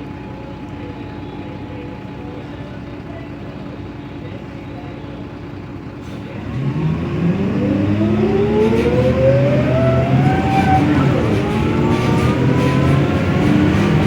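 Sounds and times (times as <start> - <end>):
bus diesel engine revving: 5.9 - 14.0.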